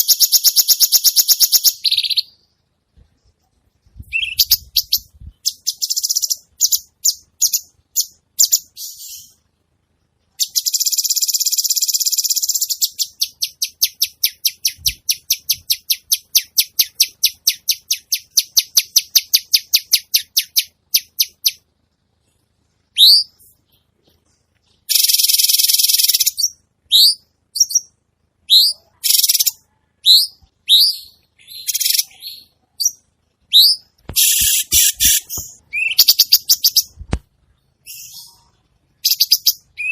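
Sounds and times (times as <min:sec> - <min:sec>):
fast repeated bird notes: 0:03.9 - 0:09.4, 0:10.3 - 0:21.7, 0:22.9 - 0:37.1, 0:37.8 - 0:39.9
short high bird chirps: 0:04.0 - 0:09.4, 0:22.9 - 0:23.9, 0:24.6 - 0:27.9, 0:28.5 - 0:37.0.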